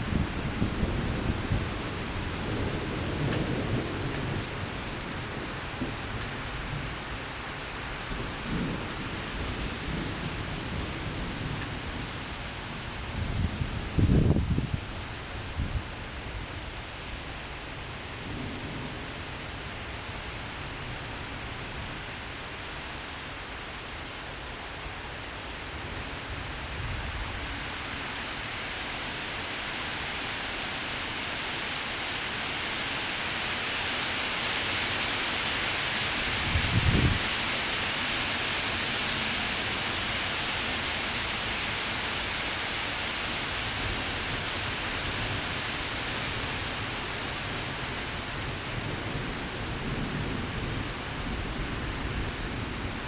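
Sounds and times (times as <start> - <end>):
strong gusty wind: 0.0 - 19.7, 33.7 - 40.3.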